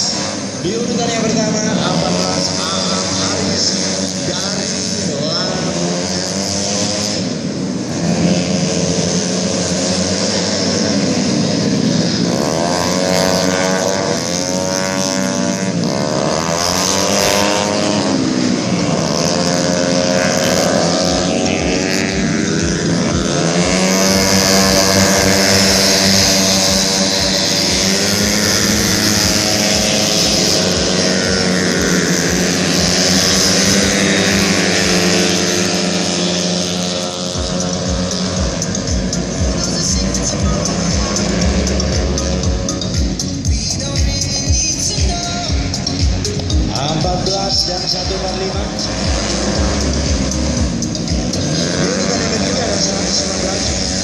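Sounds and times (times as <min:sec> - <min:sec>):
scooter engines racing at high revs: 0:00.0 - 0:54.0.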